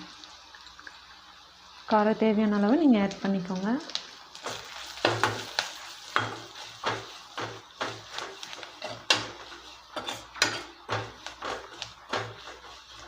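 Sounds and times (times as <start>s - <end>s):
spoon scraping a pan: 4.4s - 13.0s.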